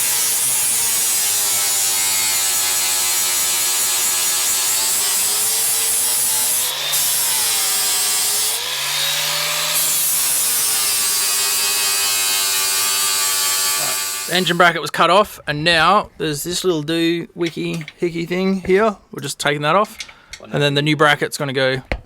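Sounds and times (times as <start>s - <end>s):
angle grinder grinding steel: 0.0s - 14.8s.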